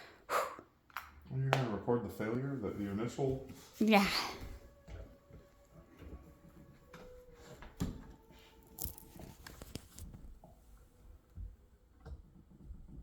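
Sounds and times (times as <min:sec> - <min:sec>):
phonograph being handled: 0:08.2 - 0:10.2.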